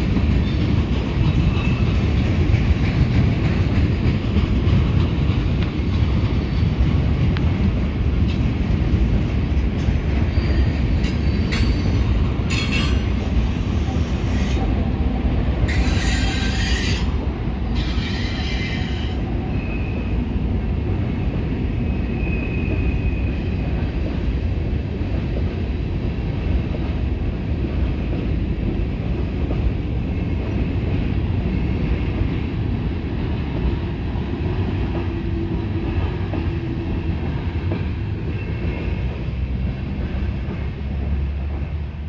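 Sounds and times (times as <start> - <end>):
train wheels rumbling on rails: 0.0 - 42.0
high wheel squeals: 10.3 - 11.9.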